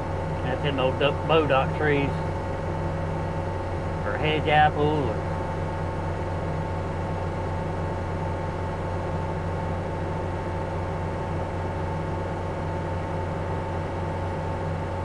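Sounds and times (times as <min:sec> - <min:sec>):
heavy diesel machinery running: 0:00.0 - 0:08.6
steady whine: 0:00.3 - 0:02.9, 0:03.8 - 0:05.6.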